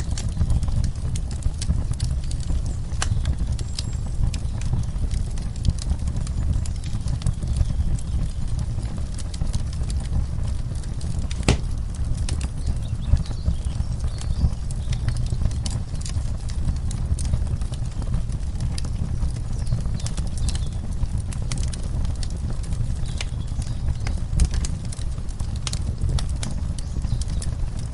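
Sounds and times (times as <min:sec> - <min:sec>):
low fire rumble: 0:00.0 - 0:27.9
wood fire crackling and popping: 0:00.0 - 0:27.9.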